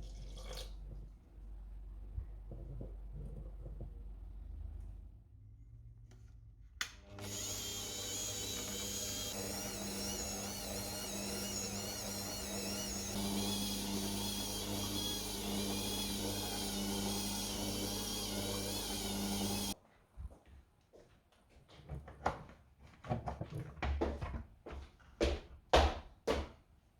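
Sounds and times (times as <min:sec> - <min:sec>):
kitchen appliance motor whining: 0:07.0 - 0:19.8.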